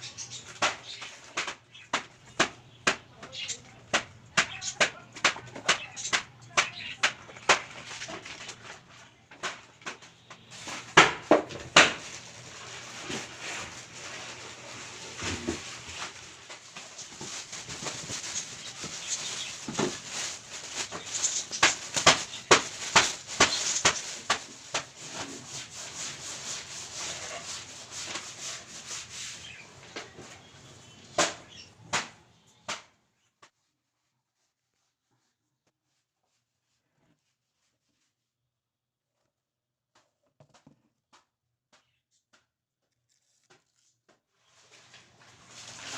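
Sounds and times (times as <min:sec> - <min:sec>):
cardboard and plastic rustling: 0:00.0 - 0:32.3, 0:43.2 - 0:45.9.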